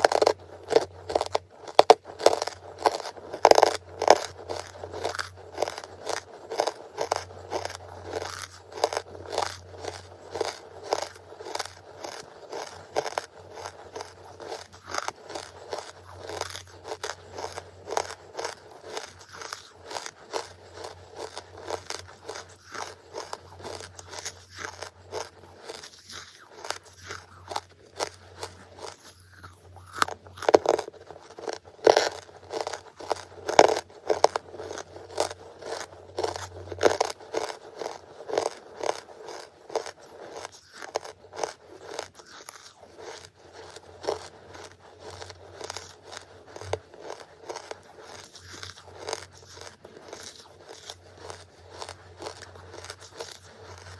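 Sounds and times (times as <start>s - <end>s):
crunching and chewing charcoal: 0.0s - 53.9s
faint low hum: 0.0s - 53.9s.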